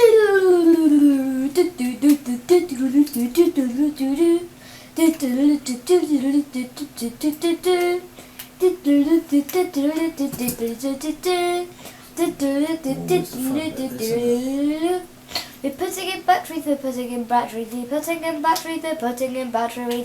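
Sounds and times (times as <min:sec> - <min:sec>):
woman humming a tune: 0:12.4 - 0:15.0.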